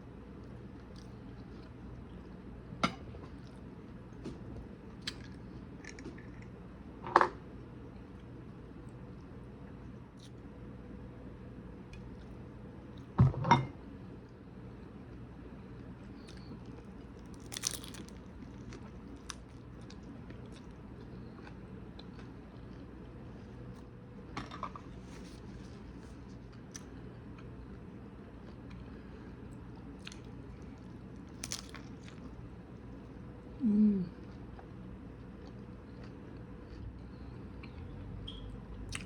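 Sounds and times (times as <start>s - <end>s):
crunchy chewing: 16.0s - 22.9s, 28.4s - 32.4s.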